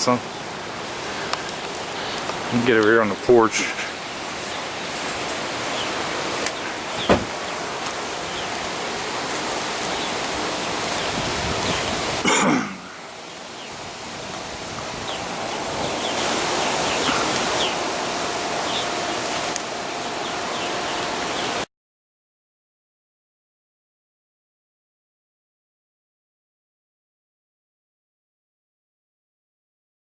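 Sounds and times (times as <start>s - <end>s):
steady rain falling: 0.0s - 21.6s
faint chirps: 16.0s - 17.9s.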